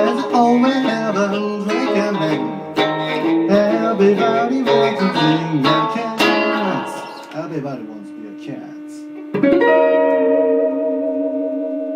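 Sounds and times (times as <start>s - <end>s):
person singing: 0.0s - 7.5s
acoustic guitar strumming: 0.0s - 11.9s.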